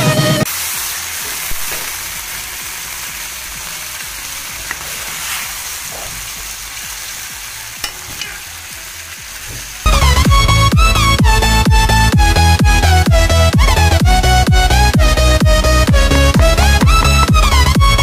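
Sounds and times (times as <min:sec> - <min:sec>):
chicken sizzling as it fries: 0:00.0 - 0:18.0
electronic dance music: 0:09.9 - 0:18.0.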